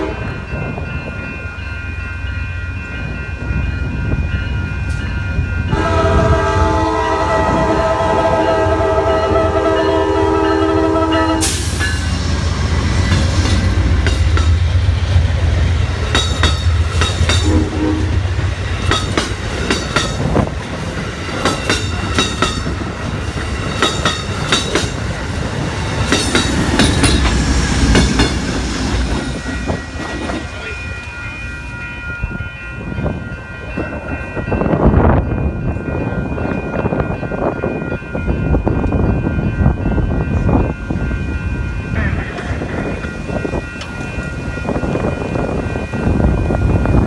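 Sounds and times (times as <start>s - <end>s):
train horn: 0.0s - 0.4s, 5.7s - 11.7s, 17.3s - 18.3s
crossing bell ringing: 0.0s - 47.0s.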